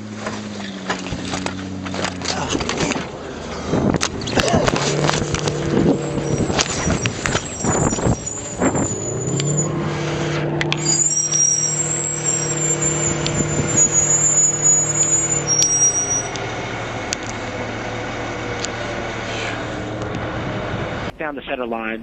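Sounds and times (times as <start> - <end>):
steady engine hum: 0.0 - 21.2.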